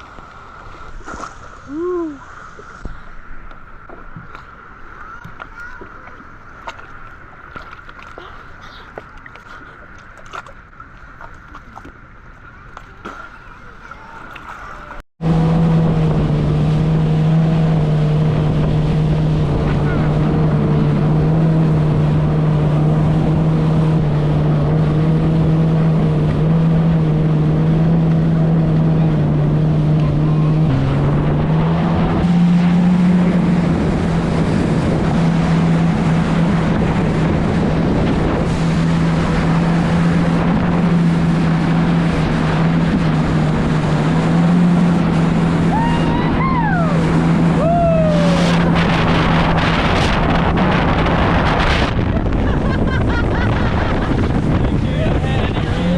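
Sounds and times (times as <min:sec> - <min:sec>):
jet ski engine running: 0:00.0 - 0:55.9
wind and water noise: 0:00.0 - 0:55.9.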